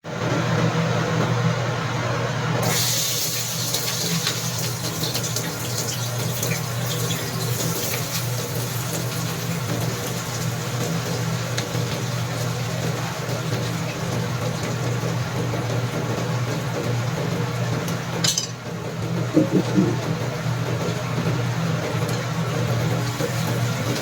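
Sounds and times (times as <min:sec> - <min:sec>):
kitchen tap running: 0:02.6 - 0:24.0
low electrical hum: 0:18.2 - 0:24.0.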